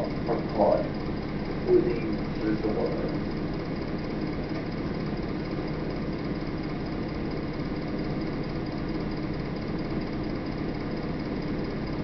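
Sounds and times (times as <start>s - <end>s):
steady low rumbling: 0.0s - 6.2s.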